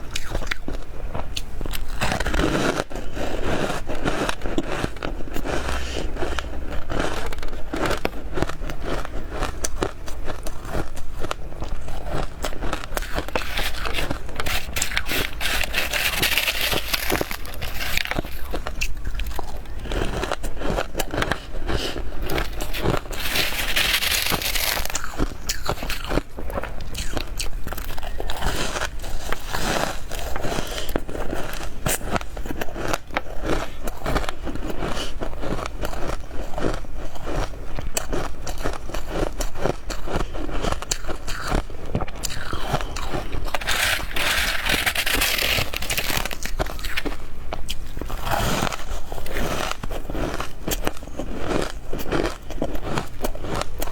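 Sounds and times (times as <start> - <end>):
crunching frozen frost: 0.1 - 53.9.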